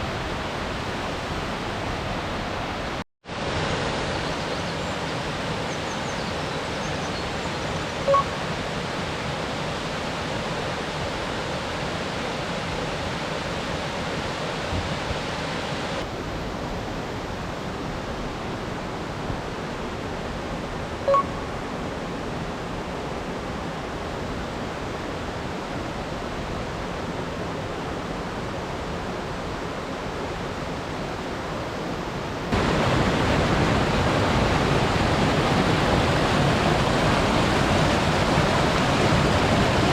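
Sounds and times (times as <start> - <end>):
brief high peeps: 8.1 - 8.4, 21.1 - 21.4
waterfall rushing: 32.3 - 39.9.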